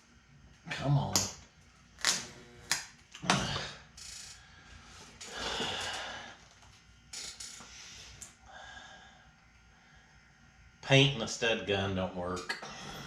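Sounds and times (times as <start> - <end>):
stud welder gun snaps: 2.0 - 2.9.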